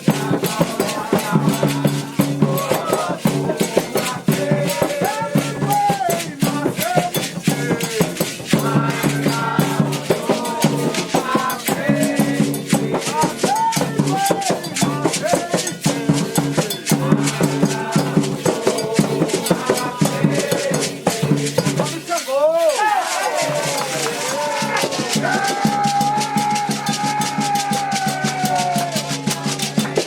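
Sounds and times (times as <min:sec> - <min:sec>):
group of voices chanting: 0:00.0 - 0:30.0
hand drums: 0:00.0 - 0:30.0
shaker rattles: 0:00.0 - 0:30.0.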